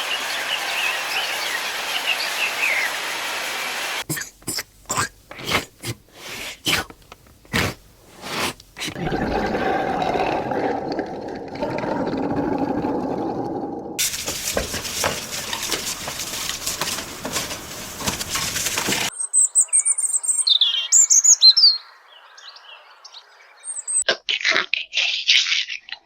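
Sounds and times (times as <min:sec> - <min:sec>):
harsh hissing rustling with clicks: 0:00.0 - 0:09.0, 0:14.0 - 0:19.1
bird chirping: 0:19.1 - 0:24.0.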